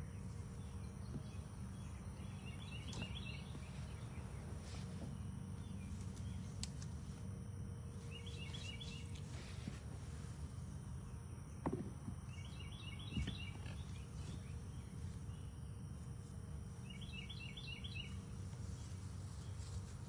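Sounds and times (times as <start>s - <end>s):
small bird chirping: 0.0s - 6.6s, 8.0s - 9.3s, 12.3s - 15.8s, 16.8s - 19.8s
low outdoor rumble: 0.0s - 20.0s.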